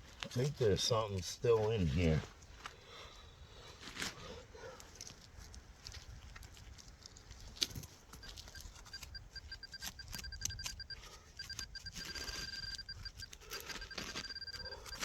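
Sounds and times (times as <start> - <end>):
soil being dug: 3.6 - 15.0
metal detector beeping: 8.1 - 15.0.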